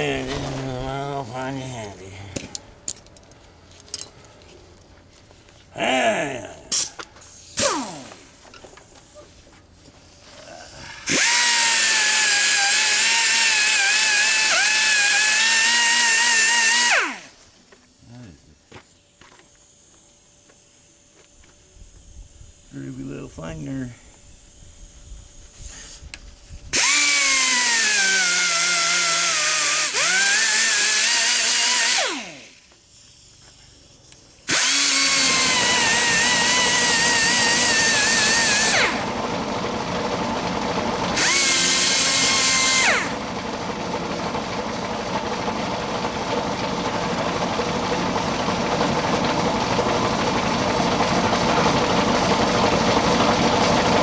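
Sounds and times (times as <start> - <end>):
power drill whining: 7.6 - 9.1, 9.9 - 17.4, 26.7 - 32.8, 34.4 - 54.0
engine running rough: 35.5 - 54.0.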